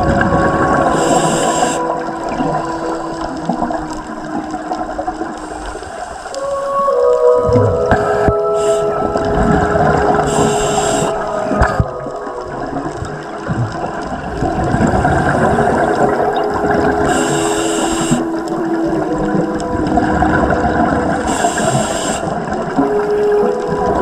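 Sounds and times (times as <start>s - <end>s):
bubbles gurgling underwater: 0.0s - 24.0s
scuba regulator hissing inhalation: 0.8s - 3.5s, 5.4s - 6.4s, 8.0s - 9.1s, 10.1s - 11.4s, 17.0s - 18.3s, 21.2s - 22.4s.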